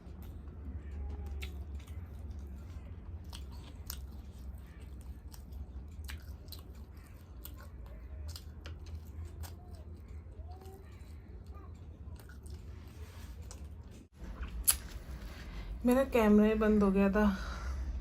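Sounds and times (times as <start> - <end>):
person chewing food: 0.0 - 15.7
low hum: 11.2 - 18.0.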